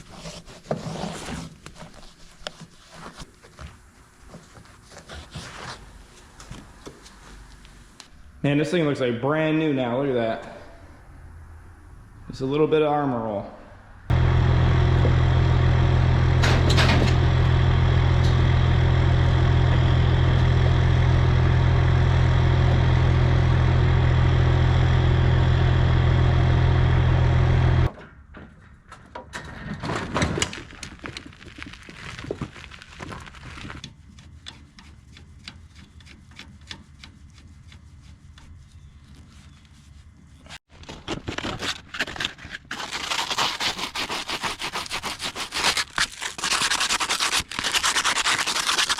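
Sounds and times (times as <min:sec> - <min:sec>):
small engine running: 0:14.1 - 0:27.9
rubbing: 0:42.7 - 0:48.9.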